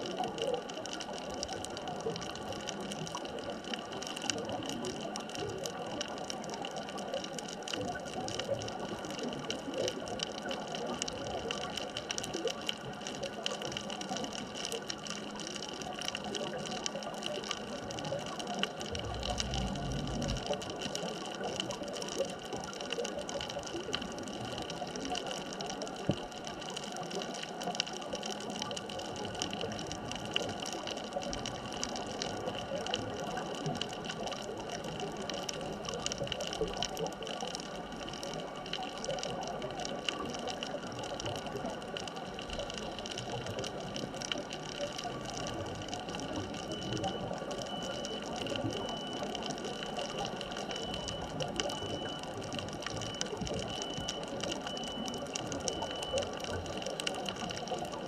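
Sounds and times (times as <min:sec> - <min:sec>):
fine crackling clicks: 0:00.0 - 0:58.0
faint constant hum: 0:17.8 - 0:21.2
low rumble: 0:18.8 - 0:20.7.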